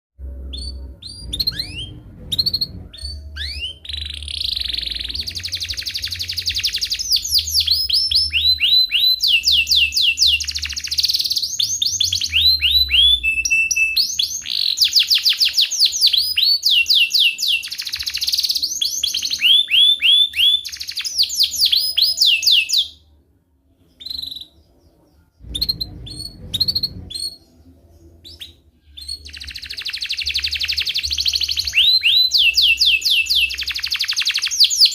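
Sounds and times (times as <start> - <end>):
canary singing trills: 0.2 - 23.1, 23.7 - 34.9
bird chirps: 0.3 - 34.9.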